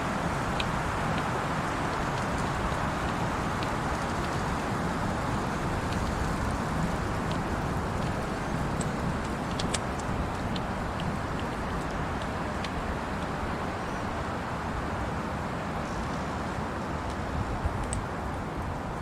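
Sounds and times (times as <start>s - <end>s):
campfire crackling: 0.0s - 15.0s
wind rushing through trees: 0.0s - 19.0s.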